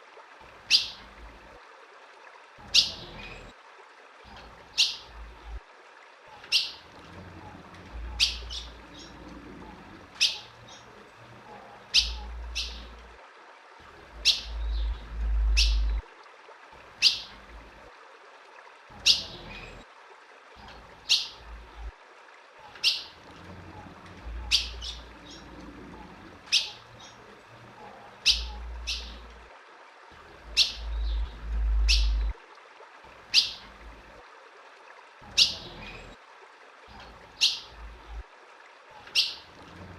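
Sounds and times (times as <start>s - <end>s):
bird chip calls: 0.7s - 1.0s, 6.4s - 6.9s, 8.0s - 9.2s, 10.2s - 10.9s, 11.9s - 13.0s, 14.2s - 16.0s, 17.0s - 17.3s, 22.6s - 23.2s, 24.3s - 25.5s, 26.5s - 27.2s, 27.9s - 29.3s, 30.5s - 32.3s, 33.3s - 33.6s, 39.0s - 39.5s
low rumbles: 14.1s - 16.1s, 30.2s - 32.4s.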